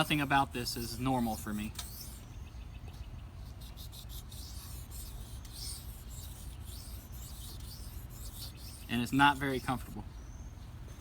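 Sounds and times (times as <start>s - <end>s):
knife scraping on whetstone: 0.7s - 2.2s, 3.6s - 9.8s.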